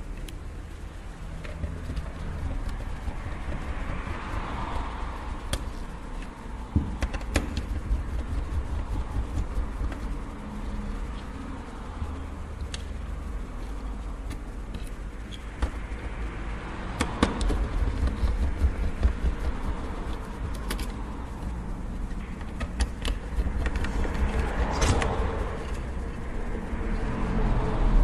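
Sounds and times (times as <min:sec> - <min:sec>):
steady low hum: 0:00.0 - 0:28.0
screwdriver clicking and scraping: 0:20.1 - 0:21.5, 0:22.1 - 0:25.9.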